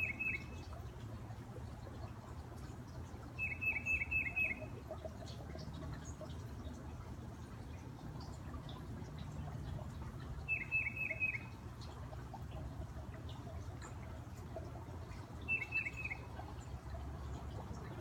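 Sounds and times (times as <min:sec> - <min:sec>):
titmouse whistled song: 0:10.5 - 0:11.4.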